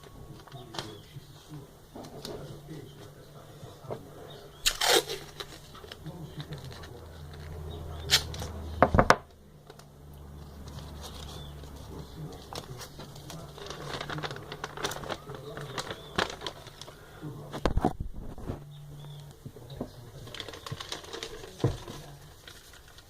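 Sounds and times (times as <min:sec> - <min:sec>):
low steady hum: 0:00.0 - 0:23.0
sharp knocks and thump: 0:08.8 - 0:09.3
rustling scrape: 0:10.5 - 0:17.0.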